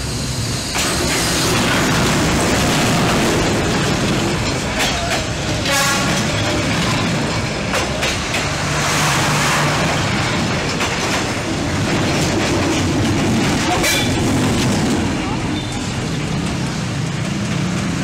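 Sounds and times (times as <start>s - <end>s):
train passing rumble: 0.0s - 18.0s
train wheels knocking: 0.7s - 18.0s.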